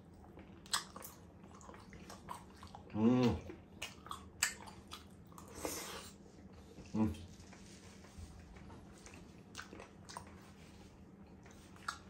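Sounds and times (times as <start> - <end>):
wet chewing: 0.0 - 6.9, 8.3 - 12.0
person humming mmm: 2.9 - 3.5.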